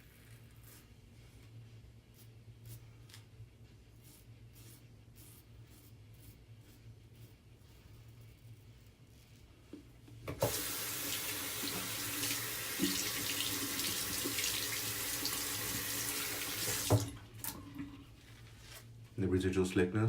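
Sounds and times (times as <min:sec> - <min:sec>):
sink tap knock: 0:16.6 - 0:17.1.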